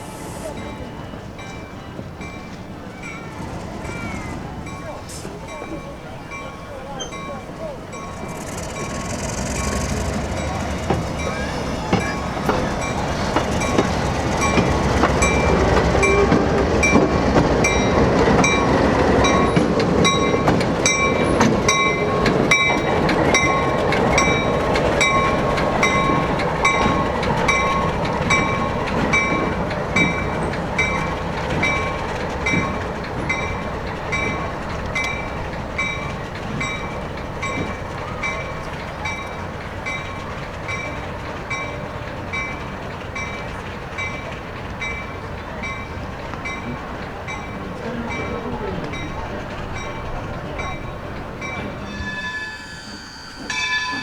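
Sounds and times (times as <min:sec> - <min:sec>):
wheels clicking over rail joints: 0:00.0 - 0:52.5
train rumbling by: 0:00.0 - 0:54.0
bell ringing: 0:49.8 - 0:54.0.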